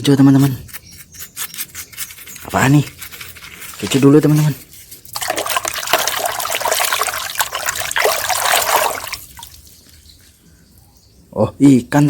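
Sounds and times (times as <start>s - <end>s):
water splashing and trickling: 4.8s - 10.4s.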